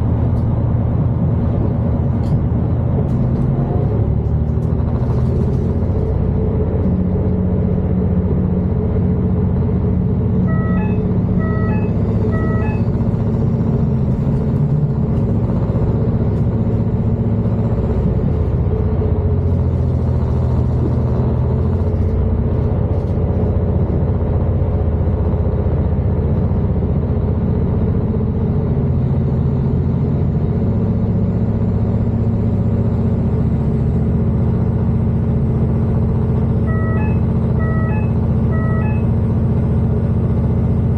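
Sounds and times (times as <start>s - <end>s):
train engine and running rumble: 0.0s - 40.9s
electronic beeps: 10.5s - 13.0s, 36.6s - 39.1s.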